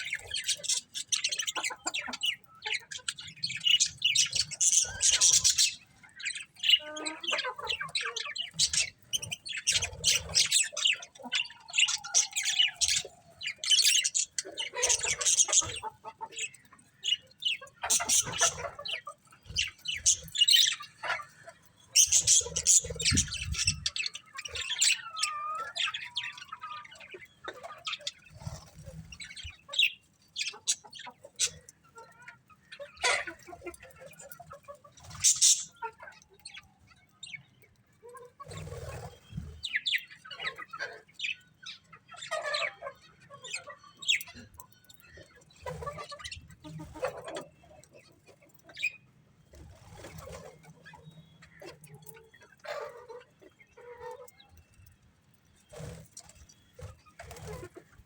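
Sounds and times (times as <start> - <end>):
budgerigars chirping: 0.0 - 36.7.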